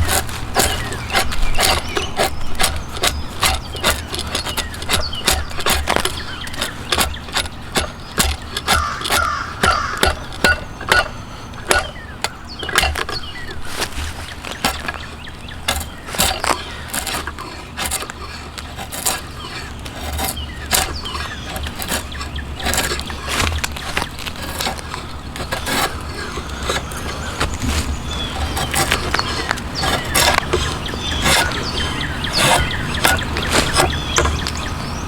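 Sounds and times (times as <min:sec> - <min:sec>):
hand tools knocking on wood: 0:00.0 - 0:34.6
crow cawing: 0:08.6 - 0:10.8.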